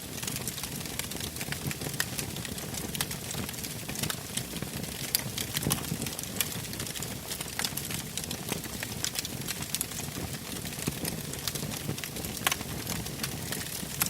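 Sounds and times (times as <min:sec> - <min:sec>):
campfire crackling and popping: 0:00.0 - 0:14.0
low steady fire rumble: 0:00.0 - 0:14.0.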